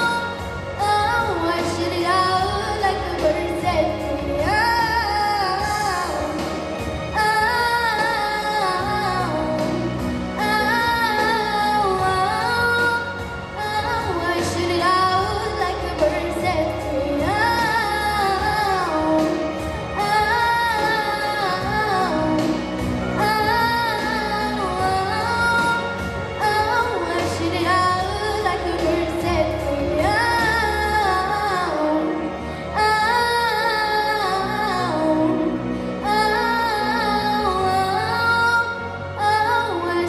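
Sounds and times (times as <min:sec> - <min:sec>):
girl singing wordless vocals: 0:00.0 - 0:06.4, 0:07.2 - 0:22.5, 0:23.2 - 0:32.1
pop ballad backing track: 0:00.0 - 0:40.0.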